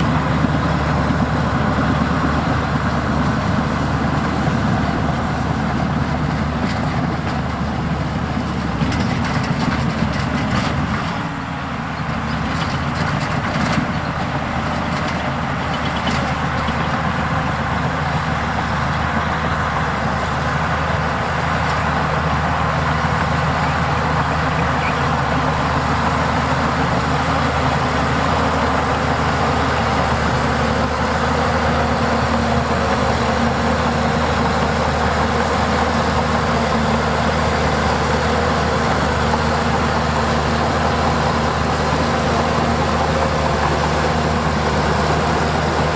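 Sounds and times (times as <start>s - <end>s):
diesel machinery engine running: 0.0s - 45.9s.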